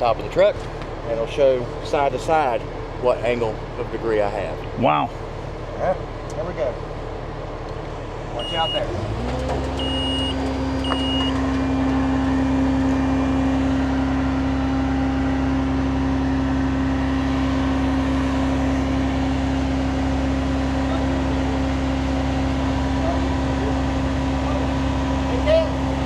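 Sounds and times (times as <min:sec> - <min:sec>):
fire truck engine: 0:00.0 - 0:26.0
ladder hydraulics humming: 0:07.8 - 0:14.4.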